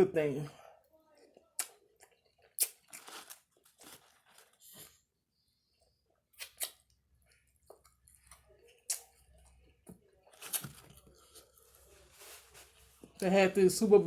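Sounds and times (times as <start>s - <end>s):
person chewing: 1.3s - 5.0s, 6.1s - 11.7s
wet mouth smacks: 6.4s - 6.9s.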